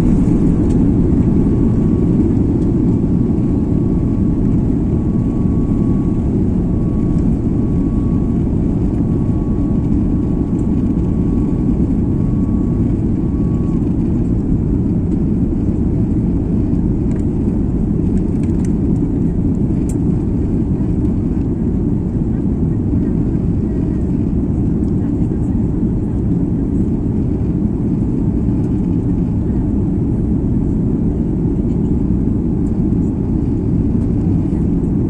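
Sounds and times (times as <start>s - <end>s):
faint steady whine: 0.0s - 24.1s
jet engine cabin rumble: 0.0s - 35.0s.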